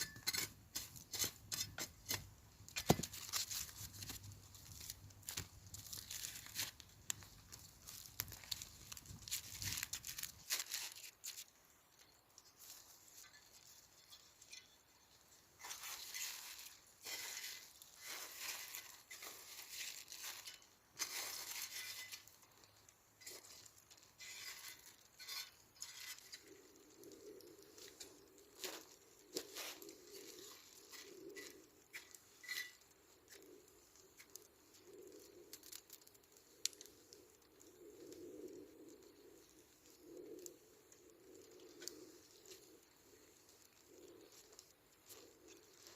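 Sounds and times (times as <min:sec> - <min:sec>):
crinkling and rustling: 0:00.0 - 0:14.6, 0:15.6 - 0:34.8.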